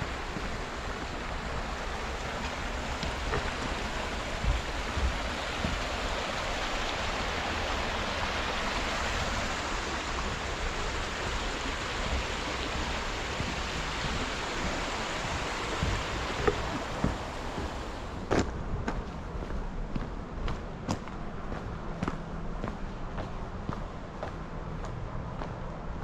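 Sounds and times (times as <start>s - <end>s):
flowing water rushing: 0.0s - 18.2s
soft low thumps: 9.0s - 20.1s.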